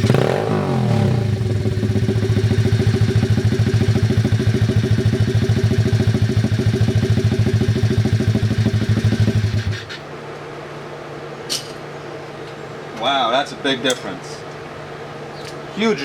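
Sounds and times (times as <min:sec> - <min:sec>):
motorbike engine idling: 0:00.0 - 0:09.9.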